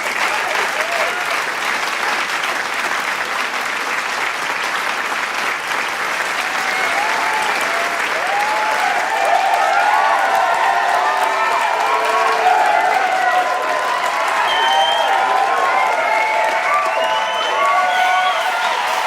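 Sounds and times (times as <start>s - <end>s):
crowd cheering and shouting: 0.0s - 1.5s, 6.1s - 19.0s
crowd clapping: 0.0s - 19.0s.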